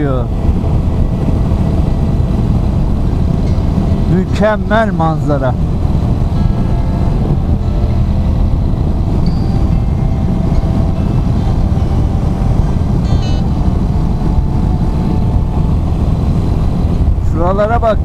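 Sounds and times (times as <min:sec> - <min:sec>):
car road noise: 0:00.0 - 0:18.0.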